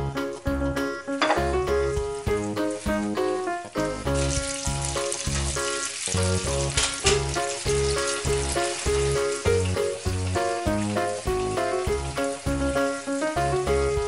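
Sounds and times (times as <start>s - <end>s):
background music with steady beat: 0.0s - 4.8s
liquid sizzling in hot pan: 1.1s - 14.0s.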